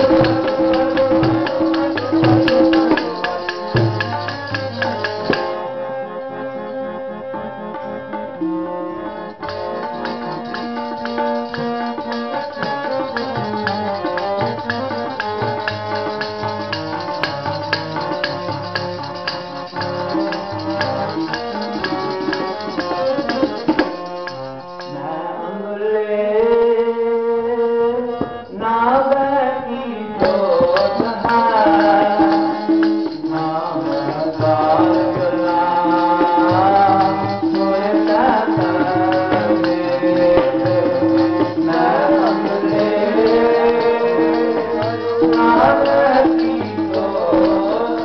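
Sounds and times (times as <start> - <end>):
person singing a hymn: 0.0 - 5.4, 24.8 - 48.0
jingling percussion: 0.0 - 5.7, 9.2 - 25.1, 30.2 - 48.0
tabla drumming: 0.0 - 5.8, 9.3 - 25.0, 30.1 - 48.0
harmonium: 0.0 - 48.0.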